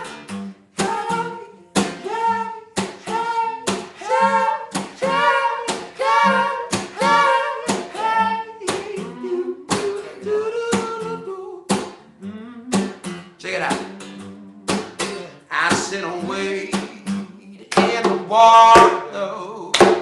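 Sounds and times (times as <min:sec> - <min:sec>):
rhythmic hand claps: 0:00.8 - 0:09.0, 0:11.7 - 0:12.0, 0:14.7 - 0:15.9, 0:17.7 - 0:19.1, 0:19.7 - 0:20.0
person singing wordless notes: 0:00.8 - 0:19.7.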